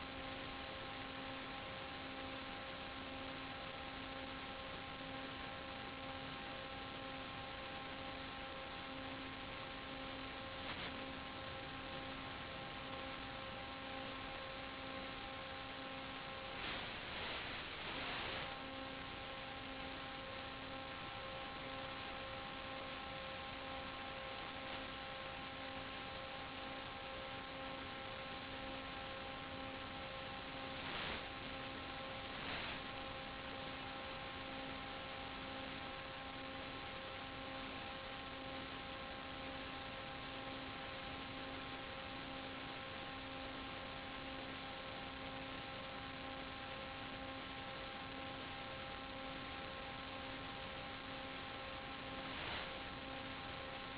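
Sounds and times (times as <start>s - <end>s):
electrical buzzing hum: 0.0s - 53.9s
steady hiss: 0.0s - 53.9s
brief crackles: 10.6s - 11.0s.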